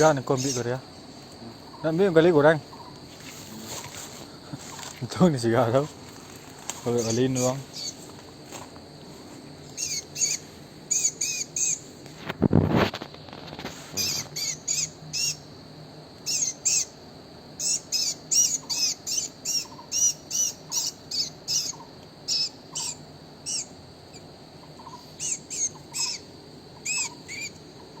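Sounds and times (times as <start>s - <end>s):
bird chirping: 0.0s - 0.8s, 2.6s - 3.0s, 6.9s - 8.0s, 9.7s - 11.8s, 14.0s - 15.4s, 16.2s - 17.0s, 17.6s - 28.0s.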